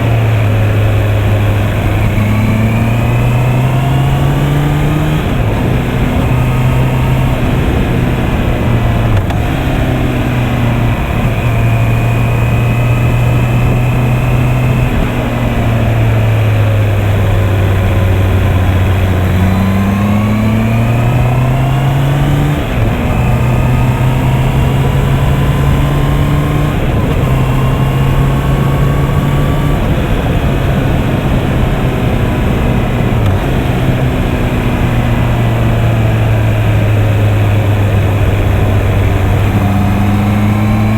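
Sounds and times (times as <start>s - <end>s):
motorcycle engine revving: 0.0s - 40.9s
wind noise: 0.0s - 40.9s.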